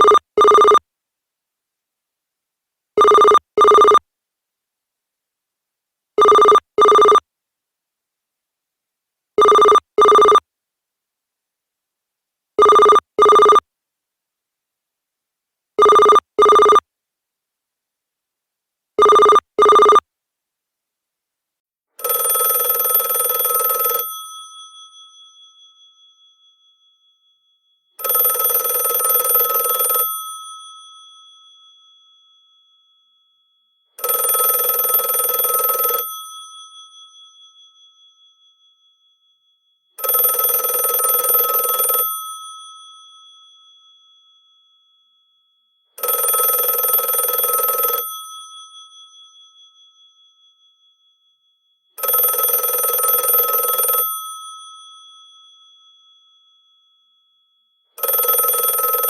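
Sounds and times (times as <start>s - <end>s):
old telephone bell ringing: 22.0s - 59.0s.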